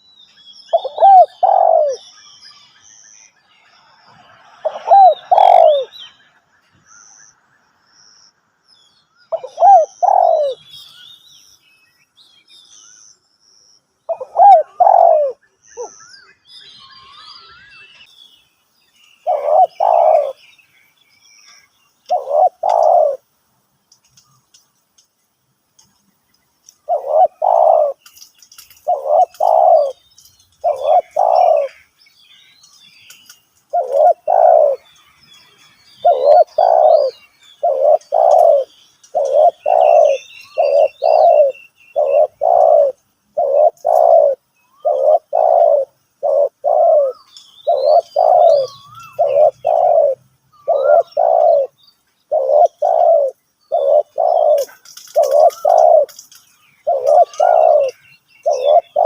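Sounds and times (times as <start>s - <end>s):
small birds chirping faintly: 0.0s - 59.0s
dove cooing: 0.7s - 2.0s, 4.6s - 5.9s, 9.3s - 10.6s, 14.1s - 15.9s, 19.2s - 20.4s, 22.1s - 23.2s, 26.9s - 30.0s, 30.6s - 31.8s, 33.7s - 34.9s, 36.0s - 59.0s.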